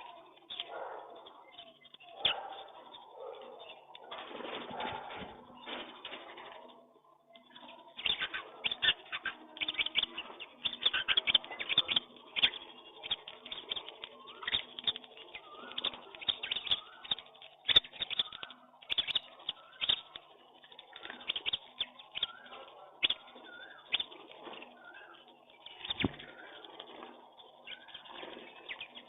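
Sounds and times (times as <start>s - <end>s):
bird clicks and chirps: 0.0s - 4.2s, 4.8s - 29.0s
pigeons cooing: 7.8s - 29.0s.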